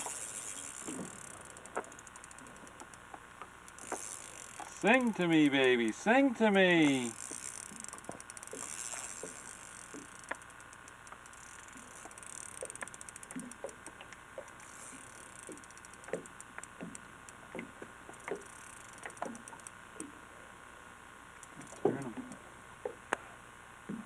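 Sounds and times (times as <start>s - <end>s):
fishing reel clicking: 0.0s - 20.1s, 21.4s - 22.4s.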